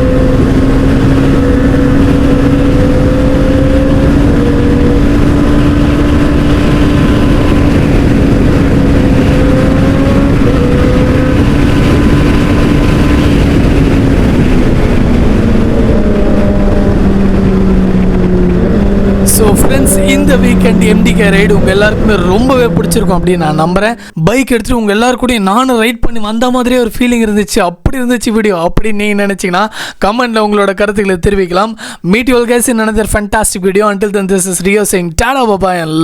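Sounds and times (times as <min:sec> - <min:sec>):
motorcycle engine running: 0:00.0 - 0:24.1
wind rush: 0:00.0 - 0:24.8.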